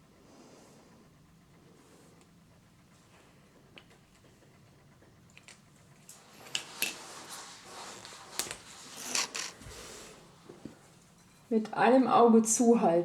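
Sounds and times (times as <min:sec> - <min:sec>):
soft scraping rustles: 0:06.1 - 0:11.6.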